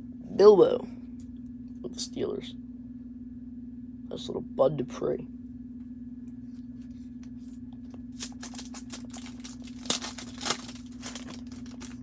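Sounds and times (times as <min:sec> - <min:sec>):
low electrical hum: 0:00.0 - 0:12.0
foil wrapper crinkling and tearing: 0:08.1 - 0:12.0.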